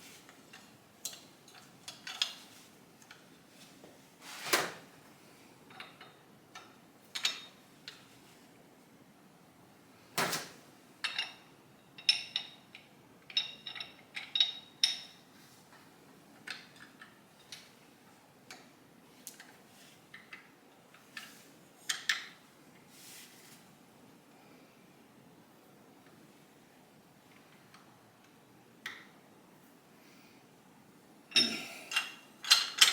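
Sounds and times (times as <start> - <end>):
metal tools clicking and clinking: 12.0 - 15.2, 31.3 - 32.9.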